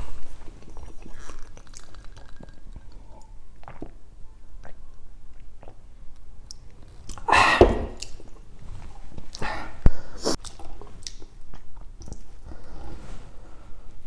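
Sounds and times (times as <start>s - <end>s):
chewing and wet mouth sounds: 0.2s - 7.3s, 9.2s - 12.6s
breathy rushes: 7.3s - 8.0s.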